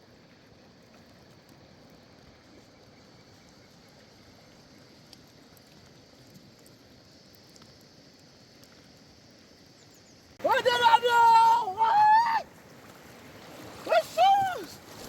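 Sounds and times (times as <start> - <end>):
soft ticks: 4.5 - 9.5.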